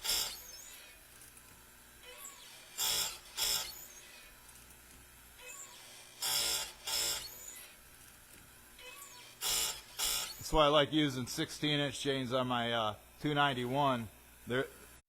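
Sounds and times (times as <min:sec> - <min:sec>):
grinding wheel on chain teeth: 0:00.0 - 0:01.1, 0:02.0 - 0:04.7, 0:05.4 - 0:07.8, 0:08.8 - 0:10.5
grinder motor running: 0:00.0 - 0:10.7.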